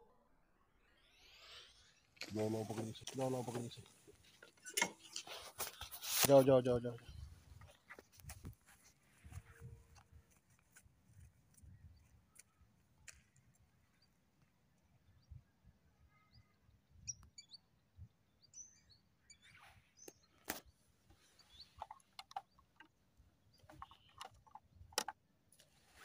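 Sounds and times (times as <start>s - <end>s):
bird chirps and tweets: 14.8s - 25.0s.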